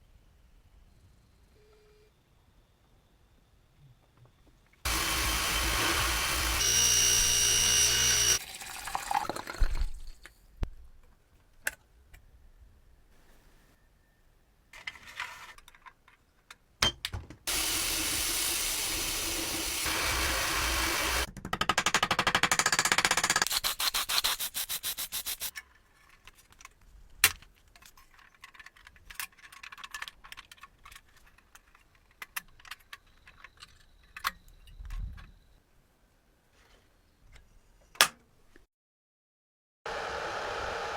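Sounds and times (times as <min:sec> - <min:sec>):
steady abrasive grinding: 0:04.9 - 0:08.4, 0:17.5 - 0:21.3
rapid sanding strokes: 0:23.5 - 0:25.5.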